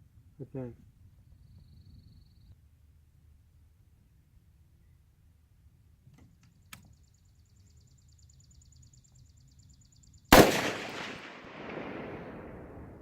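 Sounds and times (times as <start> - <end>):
loud blast with rolling echo: 10.3 - 13.0.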